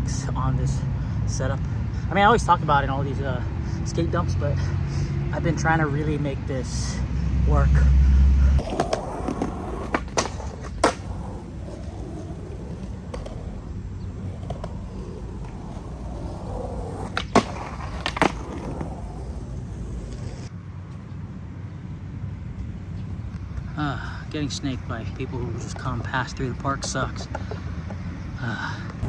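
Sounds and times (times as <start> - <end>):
skateboard clacking: 8.6 - 20.5
skateboard wheels rumbling: 8.6 - 20.5.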